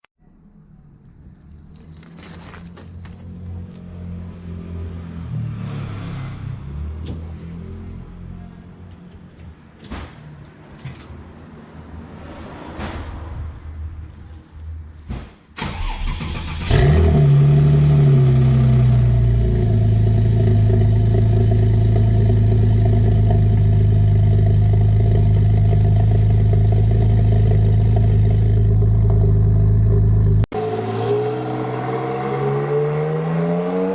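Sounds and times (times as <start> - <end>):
car engine starting and idling: 15.6 - 33.3.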